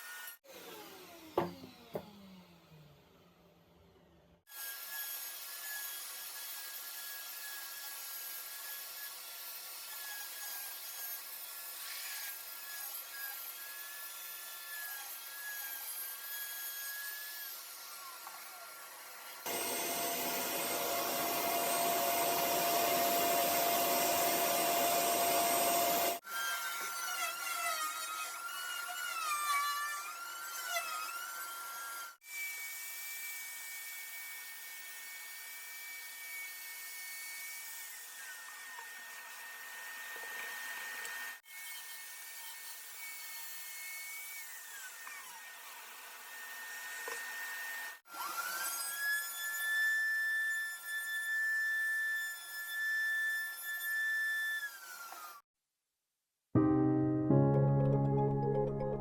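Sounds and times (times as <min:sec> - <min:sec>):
power tools cutting and sanding: 0:00.0 - 0:03.0, 0:04.5 - 0:55.4
steady motor whine: 0:19.5 - 0:26.2.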